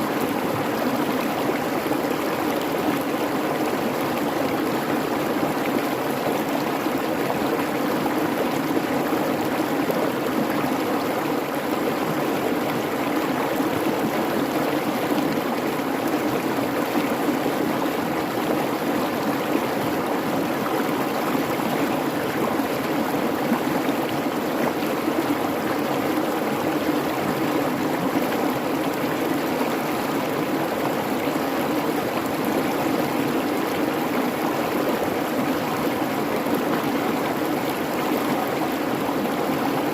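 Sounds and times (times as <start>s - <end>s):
creek babbling over rocks: 0.0s - 39.9s.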